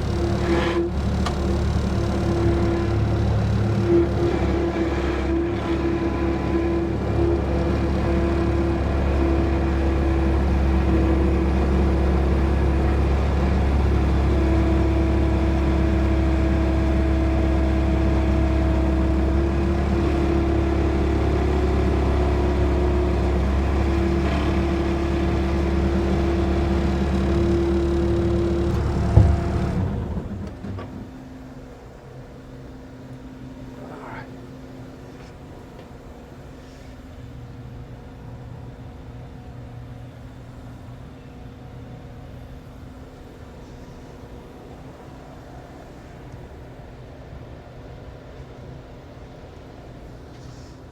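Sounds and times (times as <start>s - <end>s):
motor machine humming: 0.0s - 31.4s.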